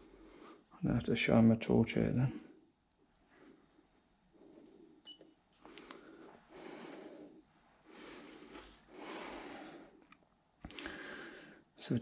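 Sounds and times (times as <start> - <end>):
long breathy rustles: 5.6 - 10.0.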